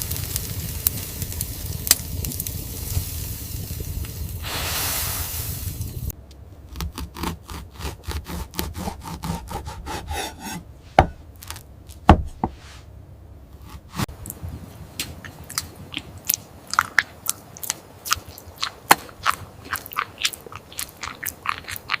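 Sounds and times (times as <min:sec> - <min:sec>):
louder knocks: 0:11.0 - 0:11.2, 0:12.1 - 0:12.6
crunching and chewing food: 0:15.1 - 0:22.0.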